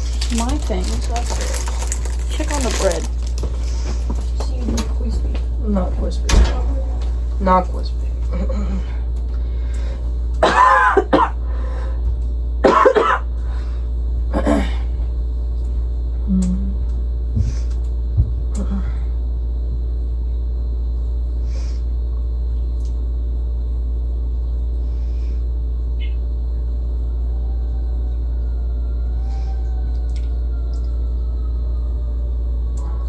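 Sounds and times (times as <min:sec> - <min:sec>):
steady low hum: 0:00.0 - 0:33.0
person coughing: 0:10.4 - 0:11.4, 0:12.6 - 0:13.3, 0:14.3 - 0:14.9.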